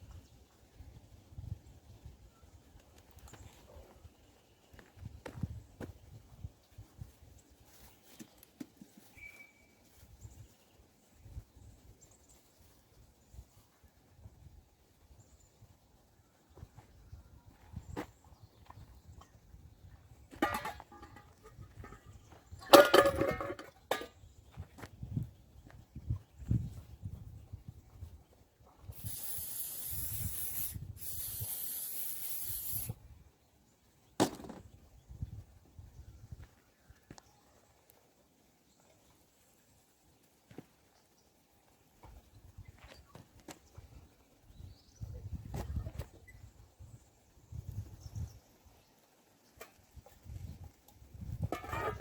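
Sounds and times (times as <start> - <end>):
spraying hiss: 28.9 - 33.0.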